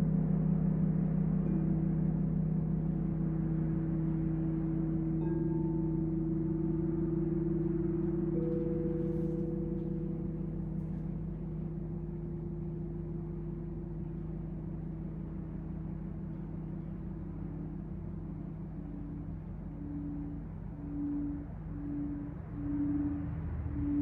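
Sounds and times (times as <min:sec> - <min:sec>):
singing bowls ringing: 0:03.7 - 0:24.0.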